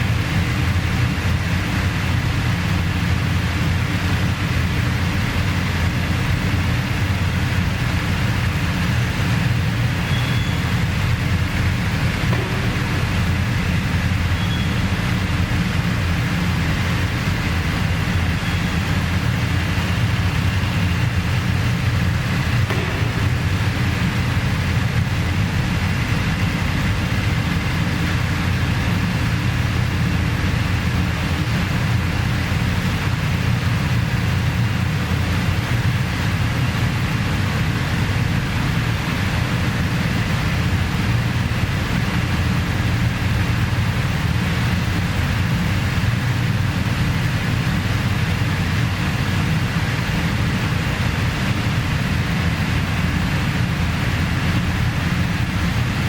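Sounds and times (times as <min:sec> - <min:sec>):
road noise: 0:00.0 - 0:56.0
vehicle engine droning: 0:00.0 - 0:56.0.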